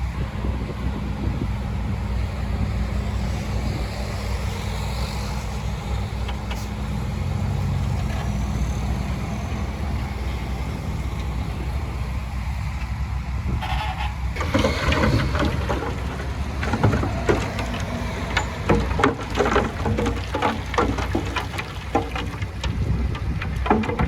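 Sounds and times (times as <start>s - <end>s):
diesel engine running: 0.0s - 23.7s.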